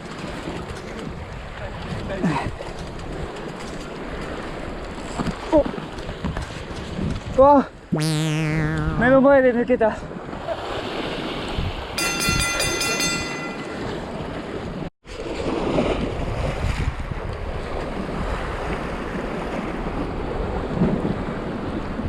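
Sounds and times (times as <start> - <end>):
high ringing tone: 12.0 - 14.0.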